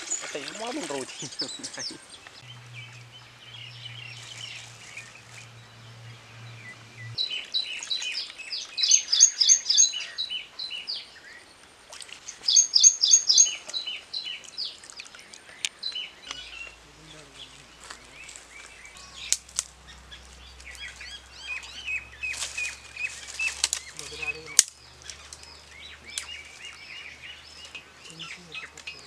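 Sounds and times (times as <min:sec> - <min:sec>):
low steady hum: 0:00.0 - 0:10.2, 0:15.4 - 0:29.0
birds chirping: 0:00.0 - 0:29.0
songbird singing high notes: 0:12.4 - 0:14.7.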